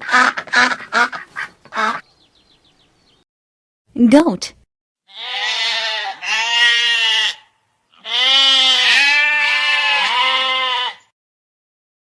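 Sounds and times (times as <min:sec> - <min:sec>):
goat bleating: 0:05.1 - 0:11.1.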